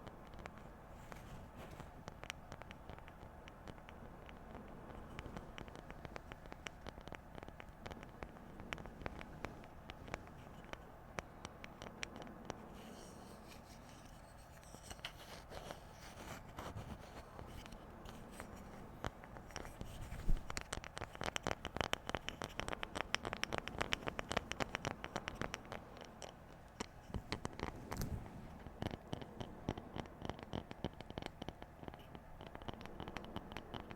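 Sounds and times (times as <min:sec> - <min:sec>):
scratching on objects: 0:00.2 - 0:33.9.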